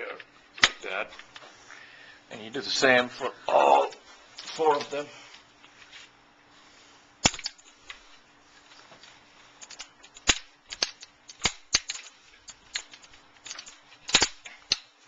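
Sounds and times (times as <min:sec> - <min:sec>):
frame pieces snapping clicks: 0:07.2 - 0:07.6, 0:09.6 - 0:15.0.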